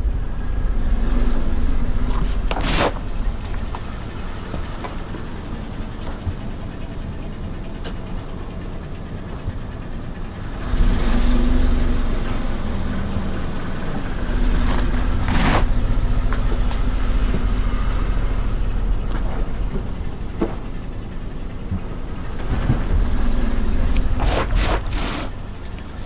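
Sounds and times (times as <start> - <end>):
car engine and tyre rumble: 0.0 - 26.0
object crushed under tyre: 2.1 - 3.8.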